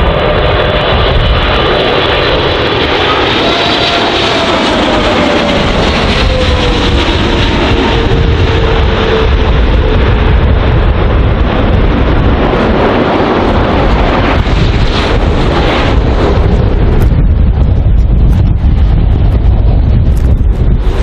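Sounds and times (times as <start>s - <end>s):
strong wind buffeting microphone: 0.0s - 21.0s.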